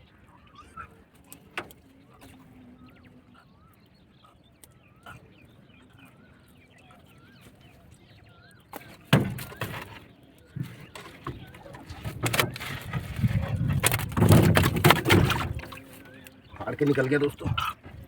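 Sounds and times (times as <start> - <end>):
small birds chirping: 0.0 - 18.0
noisy rustling: 8.8 - 18.0.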